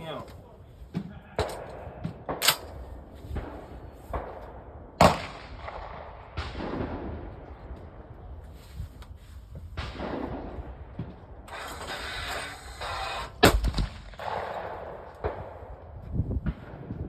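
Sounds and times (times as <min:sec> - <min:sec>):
rustling noise: 0:02.5 - 0:04.5, 0:07.8 - 0:13.4.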